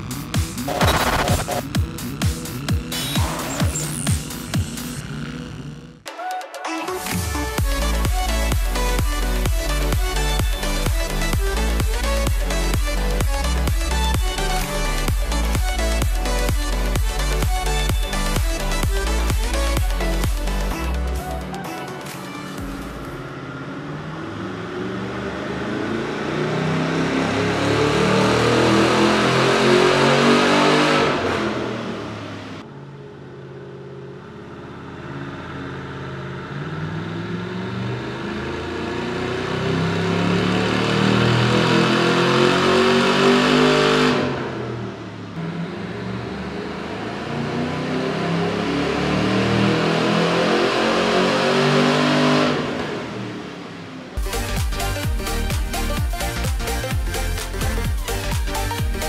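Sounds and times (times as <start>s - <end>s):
car engine revving on dyno: 0.0s - 6.0s, 22.7s - 32.7s, 33.6s - 54.5s.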